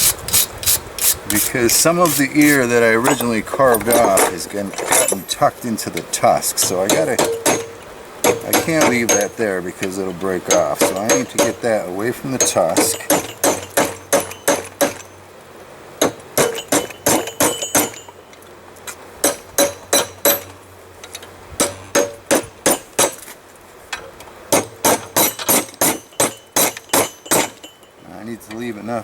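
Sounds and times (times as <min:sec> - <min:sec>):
hammer striking steel on anvil: 0:01.0 - 0:03.3, 0:06.6 - 0:09.4, 0:10.5 - 0:11.7, 0:12.4 - 0:15.1, 0:16.0 - 0:18.2, 0:19.2 - 0:20.5, 0:21.6 - 0:23.2, 0:24.6 - 0:27.8.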